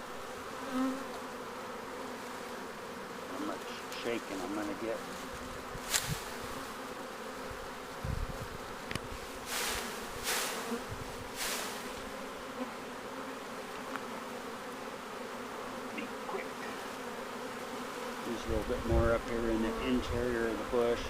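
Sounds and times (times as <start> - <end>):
bee swarm buzzing: 0.0 - 21.0
leaves and branches swishing: 4.2 - 6.6, 9.1 - 12.1.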